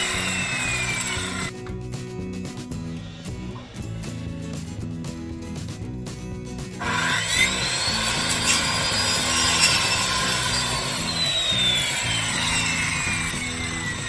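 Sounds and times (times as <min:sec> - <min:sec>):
electric saw cutting wood: 0:00.0 - 0:01.5, 0:06.8 - 0:14.0.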